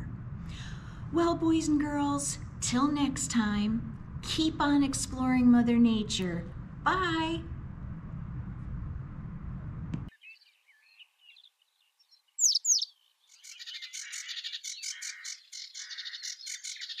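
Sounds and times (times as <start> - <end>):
steady low hum: 0.0 - 10.1
birds chirping: 10.1 - 17.0
downward-sweeping bird whistles: 10.1 - 17.0.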